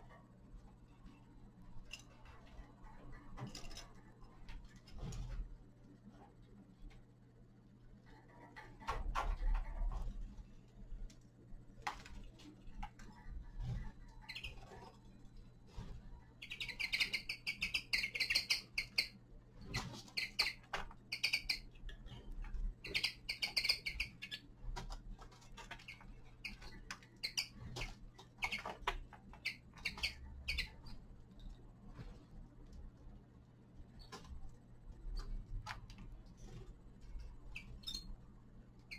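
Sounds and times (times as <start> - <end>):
finches chirping: 14.1 - 14.9, 16.3 - 21.8, 22.8 - 24.5, 25.7 - 31.0, 37.4 - 38.2.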